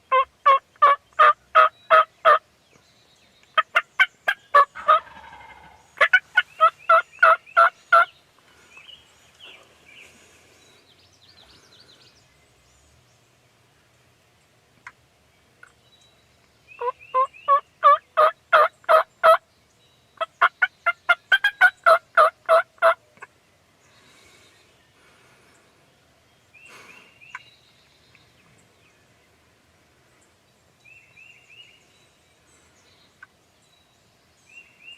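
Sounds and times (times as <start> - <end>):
bird honking calls: 3.6 - 8.1.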